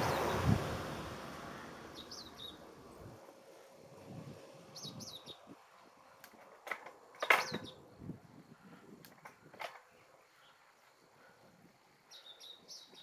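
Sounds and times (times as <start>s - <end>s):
faint wind: 0.0s - 13.0s
bird chirping: 1.9s - 3.0s, 4.7s - 5.5s, 12.0s - 13.0s.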